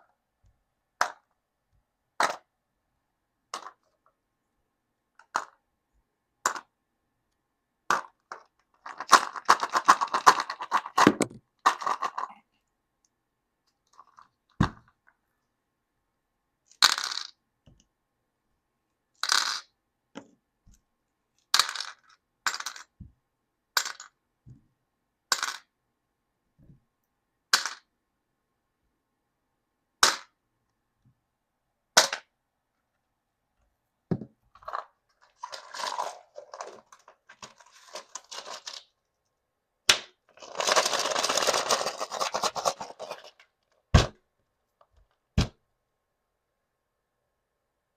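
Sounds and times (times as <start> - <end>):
plastic packaging crinkling: 35.3 - 38.9, 40.3 - 43.4.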